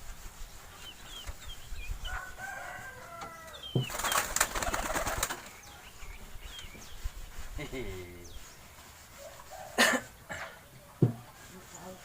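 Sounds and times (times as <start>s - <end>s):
small birds chirping: 0.0s - 12.0s
rooster crowing: 2.1s - 3.6s
pigeon wings flapping: 3.9s - 5.5s.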